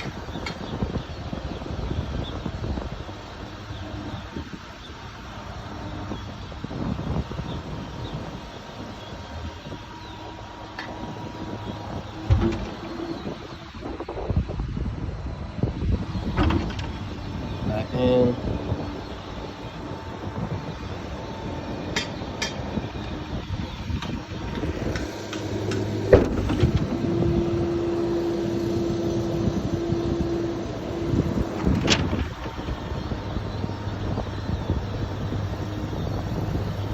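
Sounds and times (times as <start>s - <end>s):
hydraulic pump whine: 0.0s - 36.9s
truck engine idling hum: 0.0s - 36.9s.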